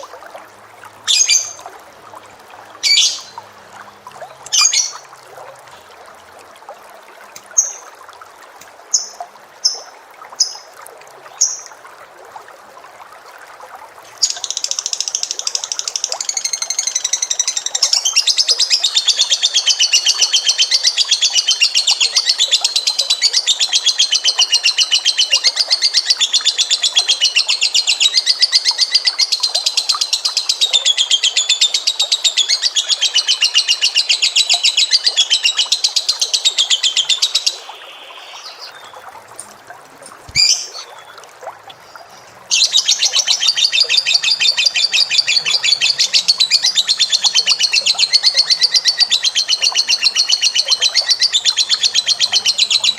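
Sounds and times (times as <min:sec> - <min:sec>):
cage bird high-pitched trill: 0:40.4 - 0:40.9.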